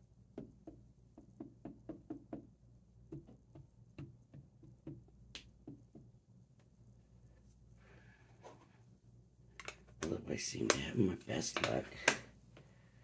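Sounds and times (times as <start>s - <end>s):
ink pad tapping: 0.3s - 2.5s, 3.1s - 6.2s.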